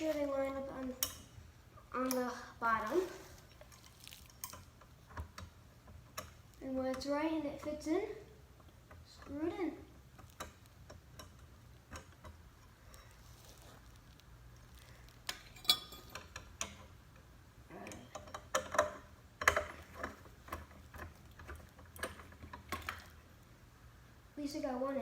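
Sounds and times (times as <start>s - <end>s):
small clicks and metallic taps: 3.5s - 7.8s, 10.1s - 13.2s, 14.0s - 23.2s.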